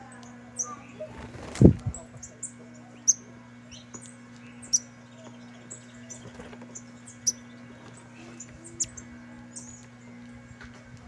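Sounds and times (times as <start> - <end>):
finches chirping: 0.0 - 10.4.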